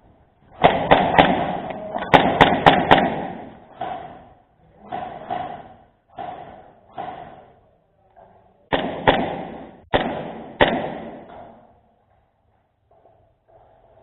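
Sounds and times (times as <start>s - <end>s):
airsoft gun shots: 0.5s - 4.3s, 8.7s - 11.4s.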